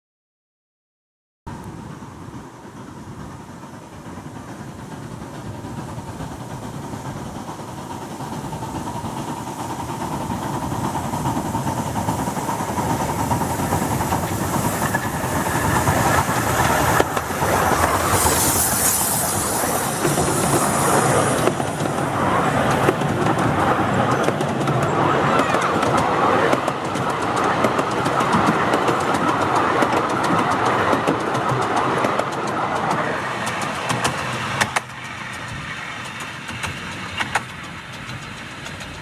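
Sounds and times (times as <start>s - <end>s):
high steam hiss: 1.5s - 39.0s
train wheels clattering over rails: 1.5s - 39.0s.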